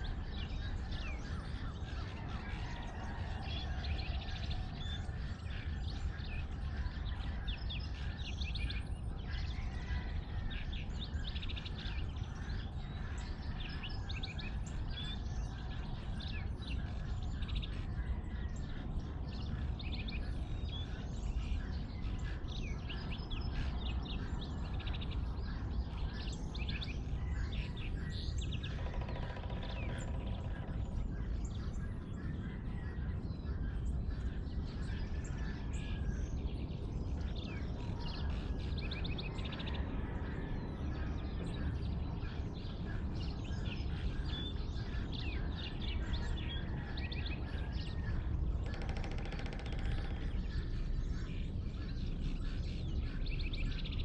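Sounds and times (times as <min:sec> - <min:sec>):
small birds chirping: 0:00.0 - 0:54.0
lower pitched bird call: 0:24.2 - 0:36.2, 0:37.2 - 0:54.0
steady low rumble: 0:29.7 - 0:48.7.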